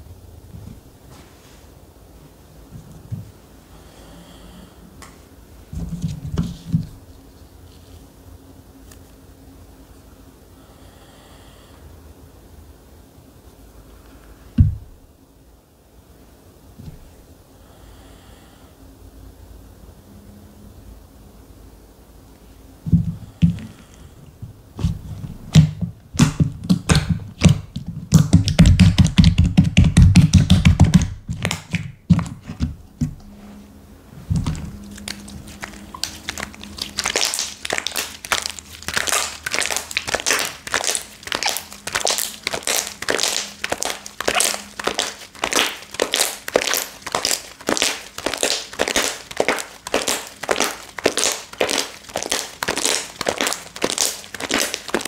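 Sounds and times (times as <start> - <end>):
slime squishing: 34.4 - 55.0
slime crackling pokes: 34.8 - 55.0.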